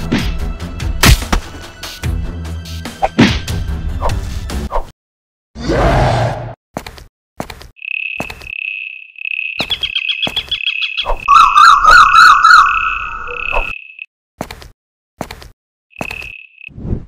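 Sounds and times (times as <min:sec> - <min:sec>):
loud warbling chirp: 0:07.8 - 0:14.1.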